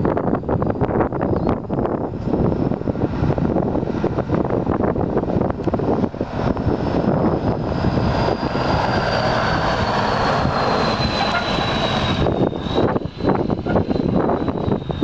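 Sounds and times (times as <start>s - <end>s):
truck engine running: 0.0s - 15.0s
wind buffeting microphone: 0.0s - 15.0s
high whine falling in pitch: 5.5s - 15.0s.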